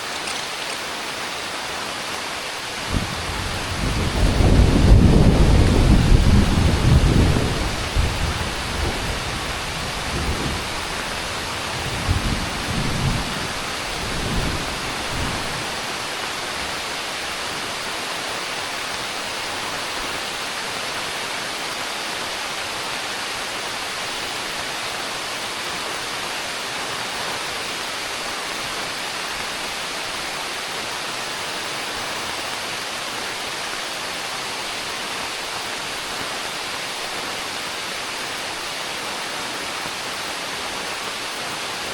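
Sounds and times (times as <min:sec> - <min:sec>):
heavy rain pouring: 0:00.0 - 0:41.9
thunder rumbling: 0:02.8 - 0:17.0.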